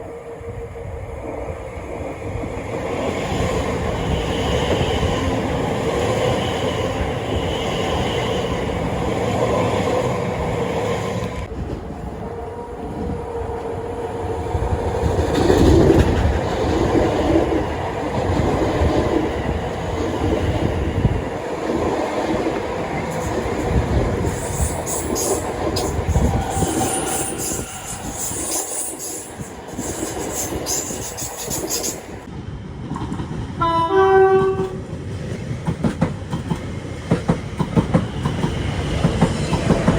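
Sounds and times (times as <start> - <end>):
train rumble and wheel clatter: 0.0 - 39.9
train horn blast: 33.6 - 34.8.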